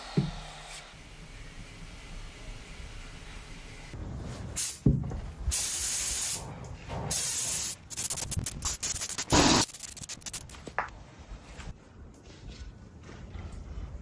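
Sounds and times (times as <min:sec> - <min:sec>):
pressurised spray hissing: 0:07.1 - 0:10.6.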